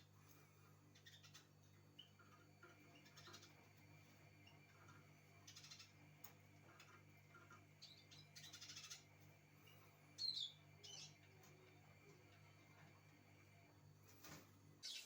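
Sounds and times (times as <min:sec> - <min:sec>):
small songbirds chirping: 0:00.0 - 0:13.6, 0:14.8 - 0:15.0
buzzy bird trill: 0:04.4 - 0:06.0, 0:07.3 - 0:11.8, 0:14.8 - 0:15.0.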